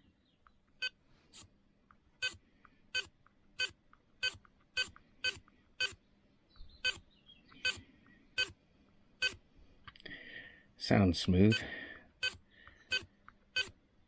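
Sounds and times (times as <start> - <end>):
servo buzzing: 2.2 - 6.0, 6.8 - 7.0, 7.6 - 7.8, 8.4 - 8.6, 9.2 - 9.4, 11.5 - 13.8.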